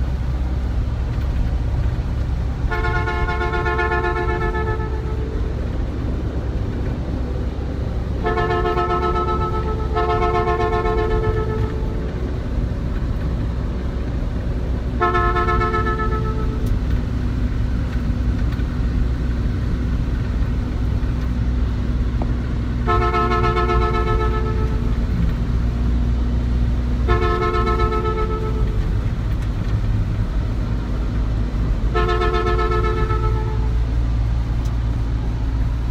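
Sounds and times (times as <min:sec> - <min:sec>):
engine and road rumble: 0:00.0 - 0:35.9
vehicle horn blasts: 0:02.7 - 0:05.6, 0:08.1 - 0:12.1, 0:14.9 - 0:16.9, 0:22.8 - 0:25.2, 0:27.0 - 0:29.2, 0:31.9 - 0:33.8.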